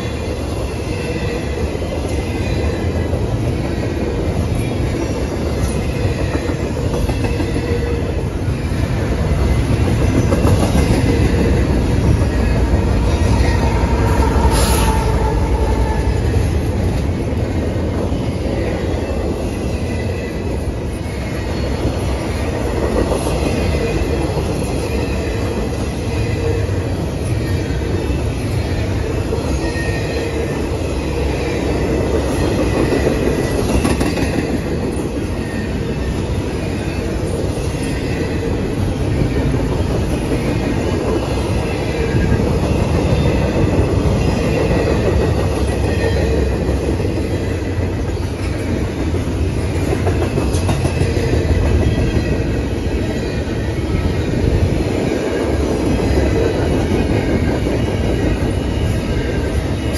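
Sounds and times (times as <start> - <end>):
rumble of steel wheels on rail: 0.0 - 59.9
high wheel squeal: 10.7 - 16.9.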